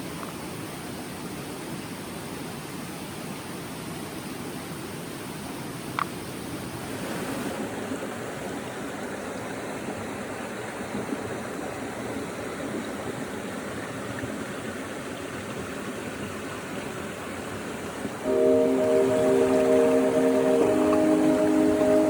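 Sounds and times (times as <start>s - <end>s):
stream rushing: 16.8s - 22.0s.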